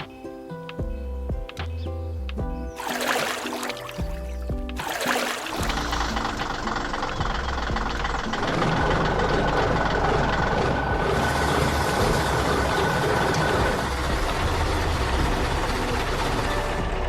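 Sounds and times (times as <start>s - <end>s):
heavy vehicle engine rumbling: 5.6s - 17.0s.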